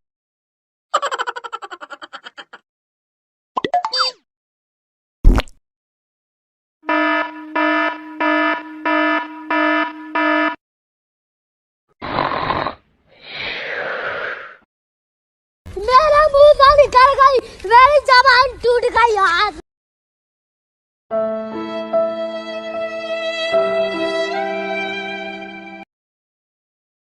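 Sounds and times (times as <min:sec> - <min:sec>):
electronic alarm beeping: 0:06.9 - 0:10.6
short hissing bursts: 0:13.2 - 0:14.6.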